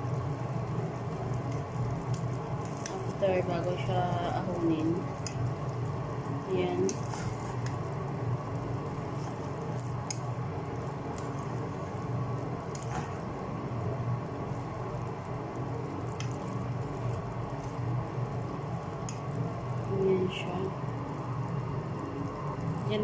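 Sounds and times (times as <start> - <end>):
sauce bubbling in a pan: 0.0 - 20.0, 20.7 - 22.9.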